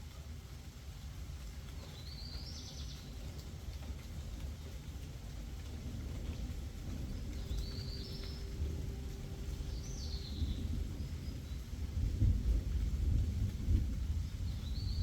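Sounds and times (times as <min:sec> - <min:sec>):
distant thunder rolling: 0:06.1 - 0:15.0.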